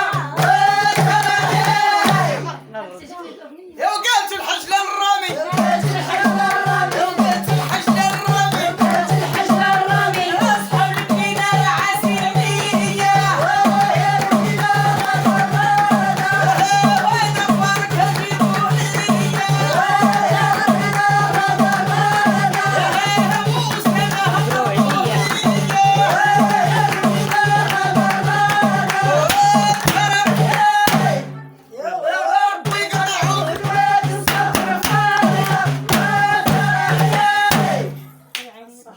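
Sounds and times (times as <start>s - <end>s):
group singing: 0.0s - 2.8s, 4.1s - 38.2s
steady drum beat: 0.0s - 2.8s, 5.2s - 31.6s, 32.6s - 38.2s
woman singing: 5.3s - 31.5s.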